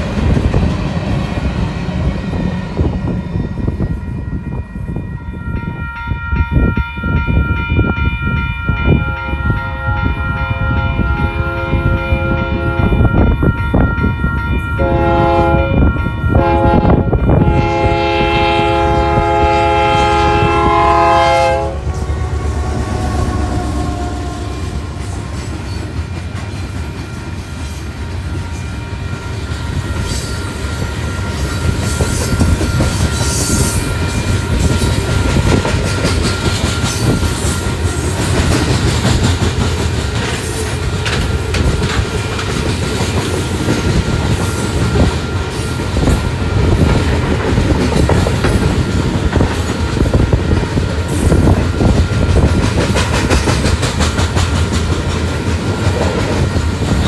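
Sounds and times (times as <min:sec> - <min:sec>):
crossing bell ringing: 0:02.1 - 0:42.4, 0:43.2 - 0:52.8
locomotive horn blasts: 0:07.6 - 0:13.5, 0:14.1 - 0:25.2
freight cars rumbling and clacking: 0:31.6 - 0:57.0.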